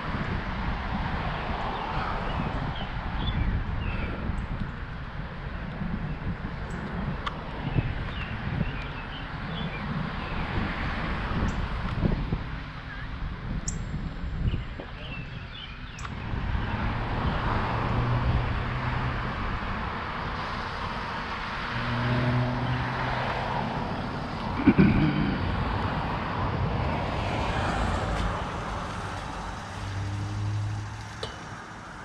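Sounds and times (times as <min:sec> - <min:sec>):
wind: 0:00.0 - 0:32.0
motor traffic passing: 0:16.0 - 0:32.0
bicycle rolling noise: 0:26.9 - 0:32.0.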